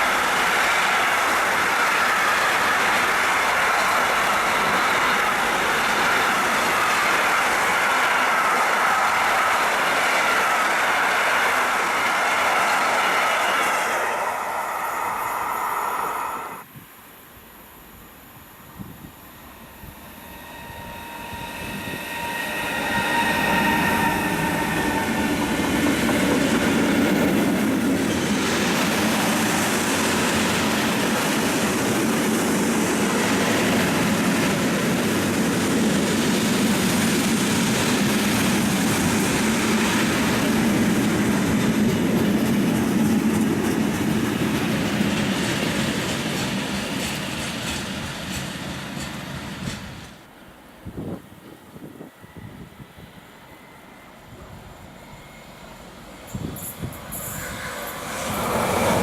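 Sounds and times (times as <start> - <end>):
train wheels rumbling on rails: 0.0 - 16.4, 18.8 - 50.3, 50.9 - 59.0
high steady tones: 19.3 - 27.9.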